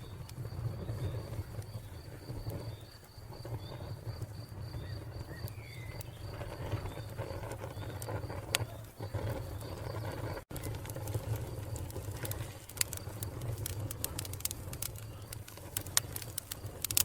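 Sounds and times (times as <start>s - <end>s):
wood fire crackling and popping: 0.0s - 17.0s
bird chirping: 4.7s - 10.1s.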